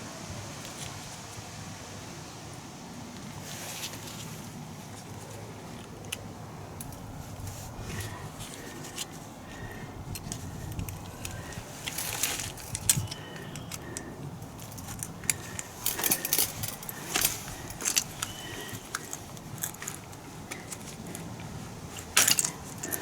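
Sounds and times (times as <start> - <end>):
metal tools clinking: 10.1 - 23.0.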